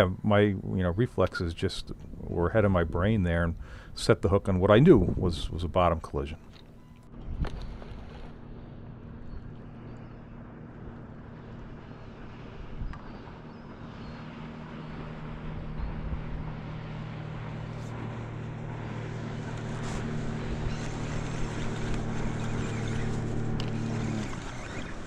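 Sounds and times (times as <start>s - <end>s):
boat engine humming: 0.0s - 25.0s
water: 0.0s - 25.0s
wind noise: 4.8s - 5.7s.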